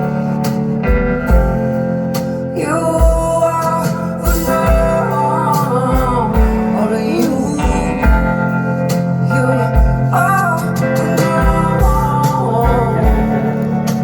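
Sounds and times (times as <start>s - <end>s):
live band music: 0.0s - 14.0s
wavering lead melody: 0.0s - 14.0s
kick drum beat: 0.9s - 1.7s, 7.6s - 8.5s, 11.4s - 13.5s.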